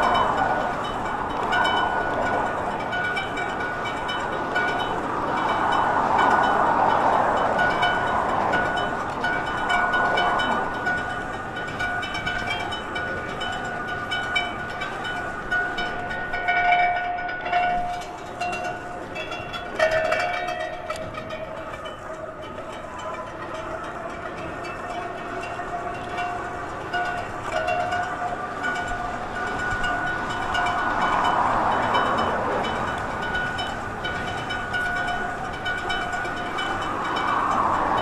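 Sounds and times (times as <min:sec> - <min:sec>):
steady rushing noise: 0:00.0 - 0:38.0.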